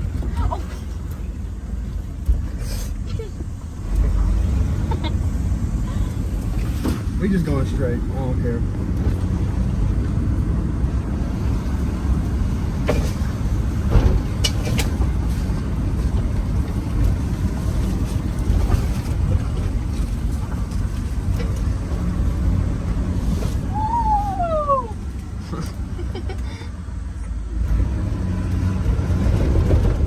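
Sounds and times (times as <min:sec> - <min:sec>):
off-road vehicle engine running: 0:00.0 - 0:30.0
knocks and rattles: 0:12.8 - 0:22.4.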